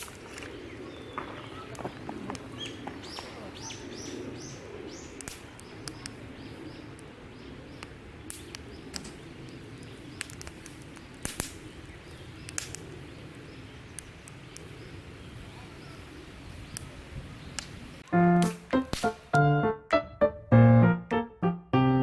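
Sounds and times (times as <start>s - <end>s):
birdsong: 0.0s - 19.4s
sharp clicks: 7.7s - 13.0s, 17.6s - 19.4s.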